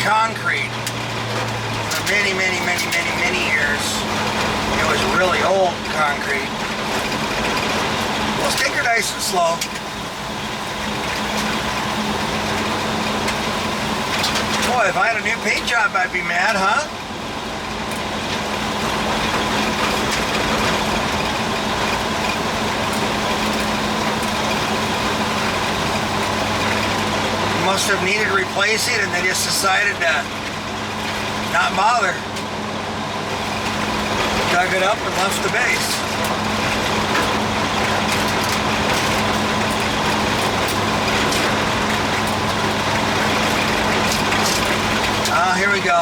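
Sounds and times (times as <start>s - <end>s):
car engine drone: 0.0s - 46.0s
tyres on gravel: 0.0s - 46.0s
loose stones ticking: 17.9s - 46.0s.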